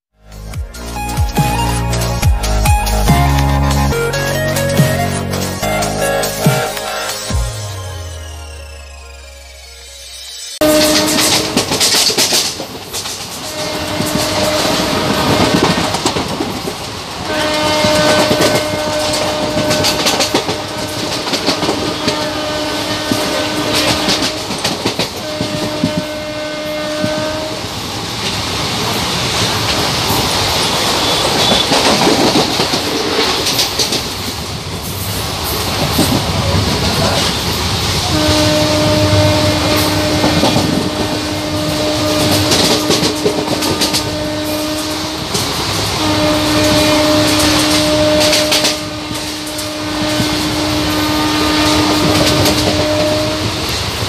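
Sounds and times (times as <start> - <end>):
train horn blasts: 10.6 - 12.6, 13.2 - 16.1, 17.2 - 27.9, 30.6 - 32.0, 36.8 - 54.0
train wheels clattering: 10.6 - 54.0.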